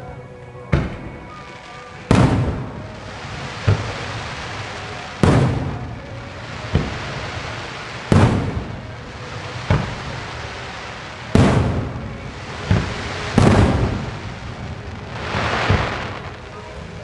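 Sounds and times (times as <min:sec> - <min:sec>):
firework shells bursting: 0:00.8 - 0:16.8
sharp booms with rumbling echo: 0:02.1 - 0:03.0, 0:04.8 - 0:10.5, 0:11.2 - 0:16.5.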